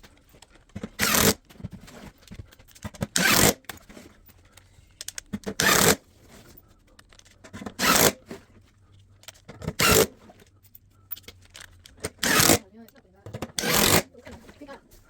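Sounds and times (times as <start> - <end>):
small clicks and knocks: 0.0 - 5.6, 8.8 - 12.2.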